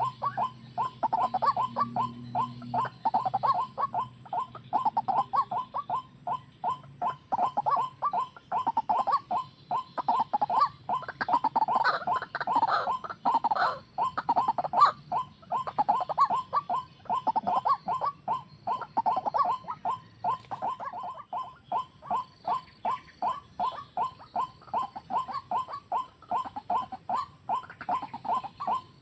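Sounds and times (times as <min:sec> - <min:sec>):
waterhen calling: 0:00.0 - 0:29.0.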